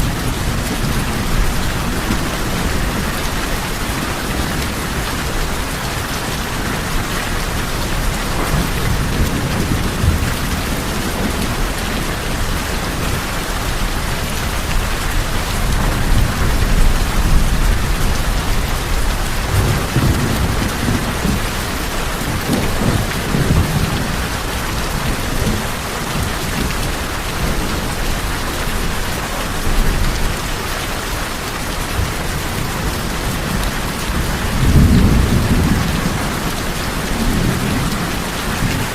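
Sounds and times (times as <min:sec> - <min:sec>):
heavy rain on tin roofs: 0:00.0 - 0:38.9
rolling thunder: 0:06.7 - 0:30.3, 0:32.3 - 0:38.9.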